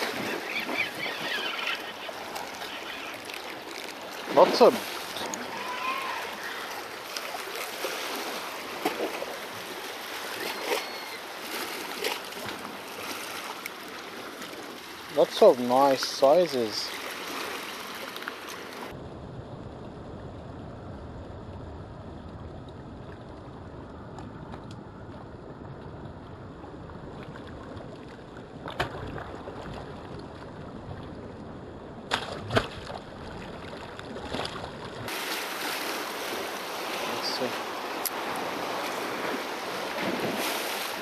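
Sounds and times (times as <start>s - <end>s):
waves: 0.0s - 20.6s, 21.2s - 41.0s
muffled water noise: 0.0s - 41.0s
sharp splashes or knocks: 32.1s - 33.0s.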